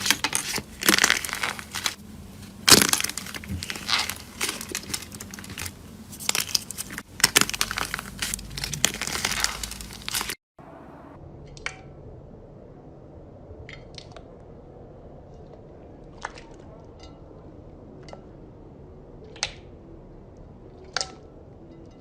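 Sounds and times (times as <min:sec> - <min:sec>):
slime crackling and popping: 0:00.0 - 0:10.4.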